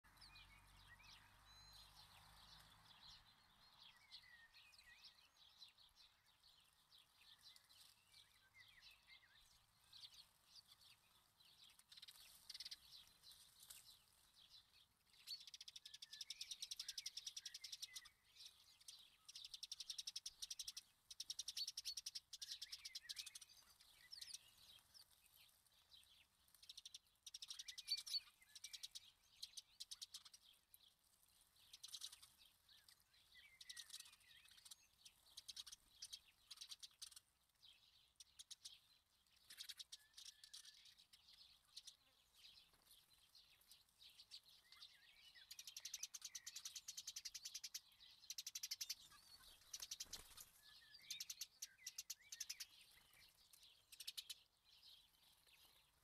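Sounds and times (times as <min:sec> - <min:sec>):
small birds chirping: 0:00.0 - 0:56.0
fast bird trills: 0:45.5 - 0:52.7.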